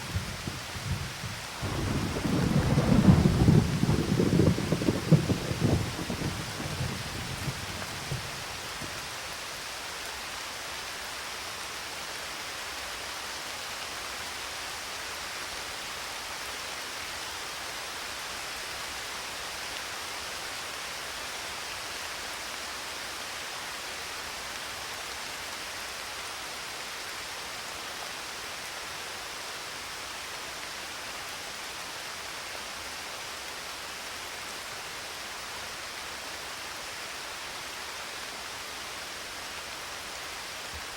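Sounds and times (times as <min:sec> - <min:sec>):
thunder rumble: 0:00.0 - 0:08.9
steady rain hiss: 0:00.0 - 0:40.9.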